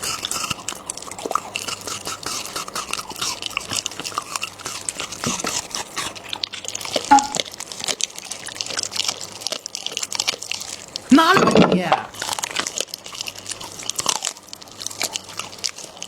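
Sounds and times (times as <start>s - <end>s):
dog chewing and crunching: 0.0s - 16.0s
brief high-pitched sound: 7.1s - 7.4s.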